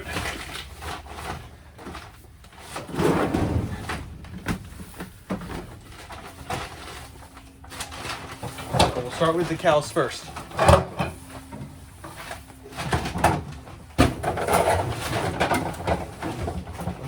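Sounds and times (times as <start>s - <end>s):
hay bales rustling and scraping: 0.0s - 10.3s.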